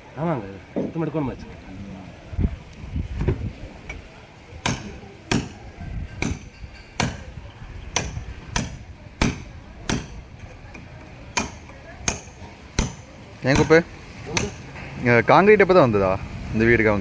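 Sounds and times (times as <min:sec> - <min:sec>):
hand tool striking: 0:04.6 - 0:14.9.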